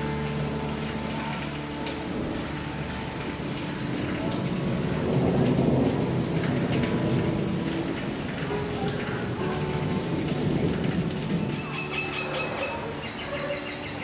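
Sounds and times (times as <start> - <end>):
rain on puddled ground: 0.0 - 14.0
thunder rumble: 3.9 - 11.6.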